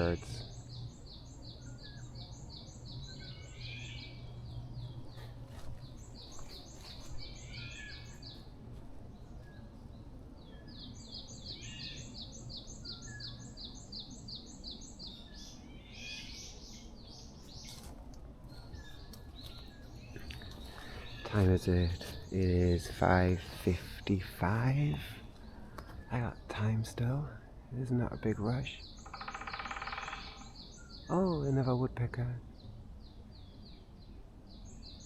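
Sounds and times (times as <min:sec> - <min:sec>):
other birds calling softly: 0:00.0 - 0:35.0
bird rapid high chirps: 0:28.0 - 0:32.0.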